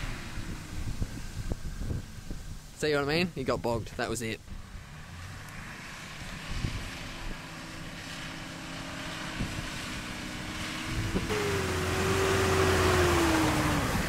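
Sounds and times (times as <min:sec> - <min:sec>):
diesel engine revving: 0:00.0 - 0:02.7, 0:04.5 - 0:14.0
wind buffeting microphone: 0:00.0 - 0:04.8, 0:06.2 - 0:07.5, 0:09.1 - 0:14.0.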